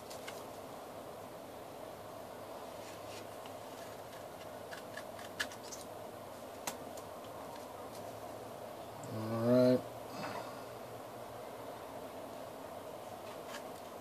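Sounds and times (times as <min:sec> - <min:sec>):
low room hum: 0:00.0 - 0:14.0
scissors snipping paper: 0:03.8 - 0:05.9.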